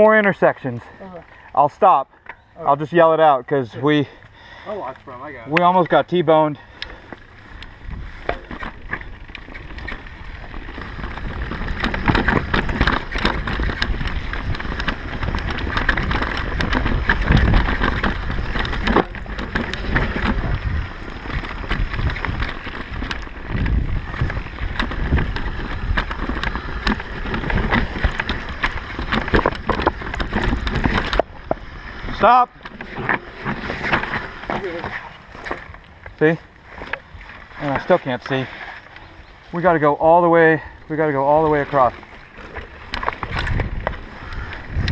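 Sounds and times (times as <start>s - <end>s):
tyres on dirt: 0.0s - 44.9s
bike rattling over bumps: 4.4s - 44.9s
wind rushing over microphone: 7.6s - 34.8s, 40.8s - 44.9s.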